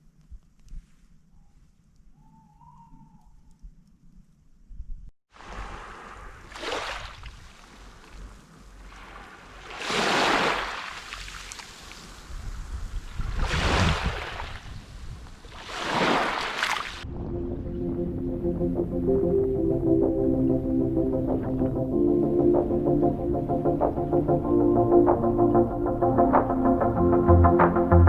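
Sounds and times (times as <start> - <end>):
sea waves breaking: 5.3 - 12.3, 13.2 - 14.7, 15.4 - 19.0
wind rumble on microphone: 12.2 - 15.6.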